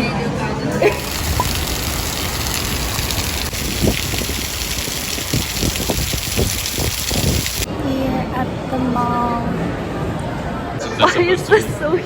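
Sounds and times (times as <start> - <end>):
heavy rain pouring: 0.8 - 7.7.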